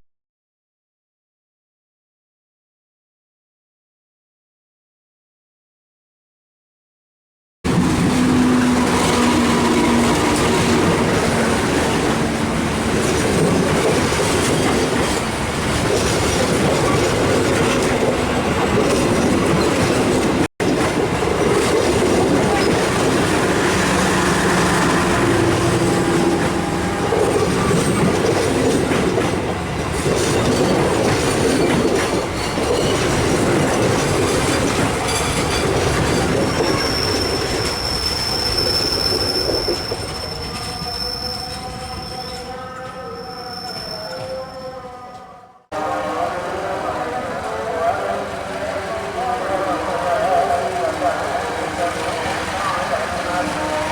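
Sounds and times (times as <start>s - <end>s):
train wheels clattering over rail joints: 7.9s - 24.1s, 25.7s - 38.3s.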